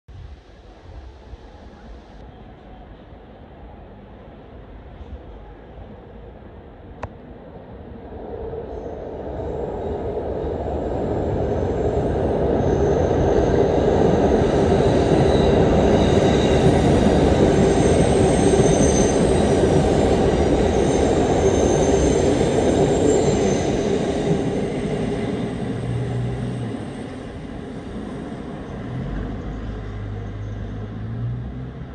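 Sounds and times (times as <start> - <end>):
train wheels rumbling on rails: 8.5 - 31.9.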